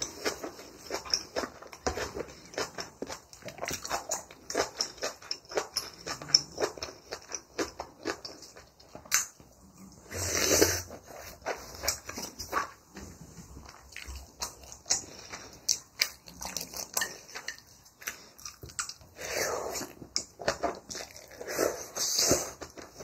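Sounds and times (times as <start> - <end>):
person chewing: 0.0 - 23.0.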